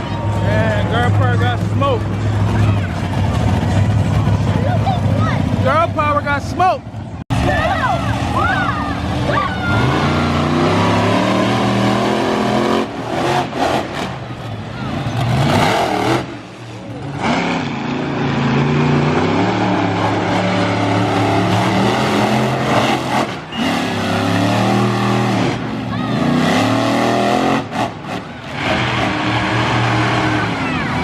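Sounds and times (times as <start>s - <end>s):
monster truck engines revving: 0.0s - 31.0s.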